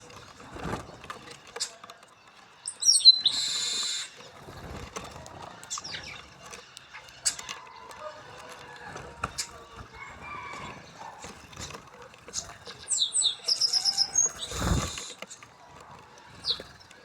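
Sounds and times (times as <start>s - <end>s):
high falling bird chirps: 2.6s - 4.2s, 12.9s - 15.0s
harsh buzzy bird call: 2.8s - 4.2s, 12.9s - 15.2s.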